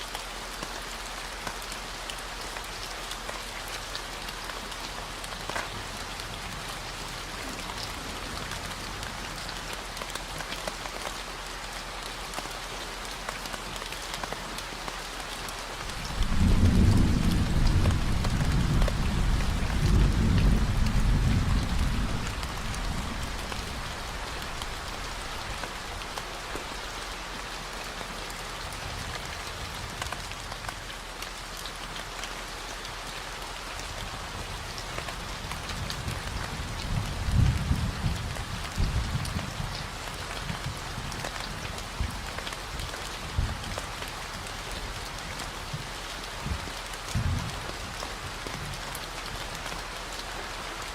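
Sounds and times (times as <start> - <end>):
steady rain falling: 0.0 - 50.9
thunder rolling: 15.9 - 24.0.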